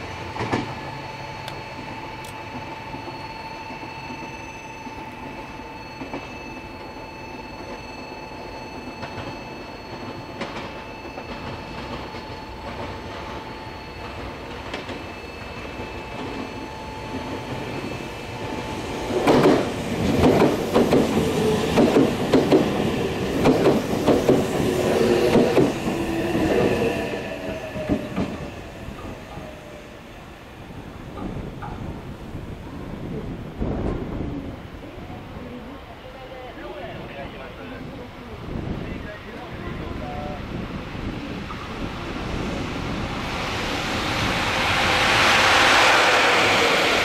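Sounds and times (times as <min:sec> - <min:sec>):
train hum with high tones: 0:00.0 - 0:47.0
train wheels clattering over rail joints: 0:19.2 - 0:26.0.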